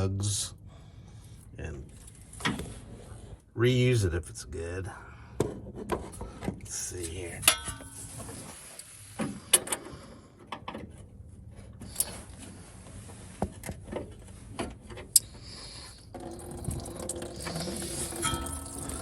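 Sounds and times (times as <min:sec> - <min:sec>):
coolant running into pan: 0:16.0 - 0:19.0.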